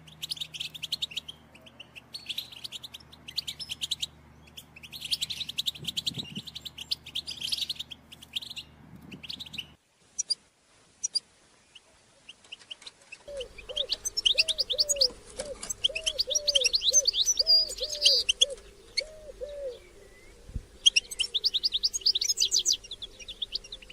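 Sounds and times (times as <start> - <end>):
goldfinches twittering: 13.3 - 23.9
low repeating bird note: 13.3 - 23.9.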